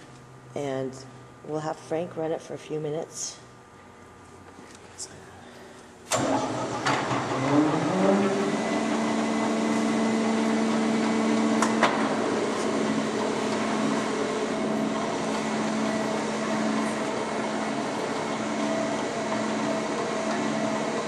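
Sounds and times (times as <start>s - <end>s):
grinder motor hum: 6.2s - 21.0s.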